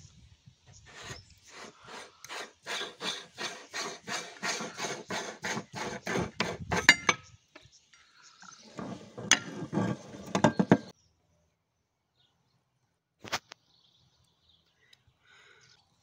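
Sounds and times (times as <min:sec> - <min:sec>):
meat grinder scraping: 0:00.9 - 0:07.1, 0:08.7 - 0:10.9
rattling: 0:05.4 - 0:07.2, 0:08.7 - 0:10.9.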